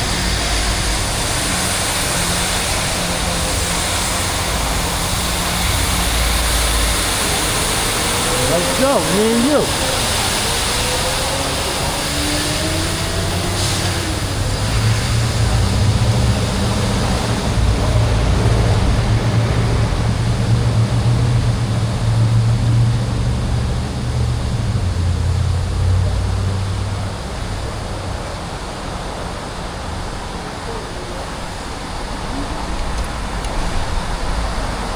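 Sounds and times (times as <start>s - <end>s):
passing street traffic: 0.0s - 34.9s
road and wind noise: 0.0s - 34.9s
strong low rumble: 14.1s - 28.1s.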